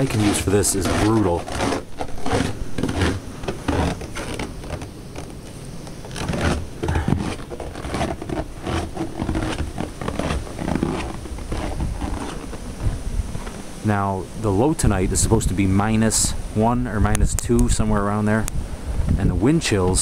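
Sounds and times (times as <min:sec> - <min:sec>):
scrapes and knocks: 0:00.0 - 0:13.6
wind buffeting microphone: 0:00.0 - 0:20.0.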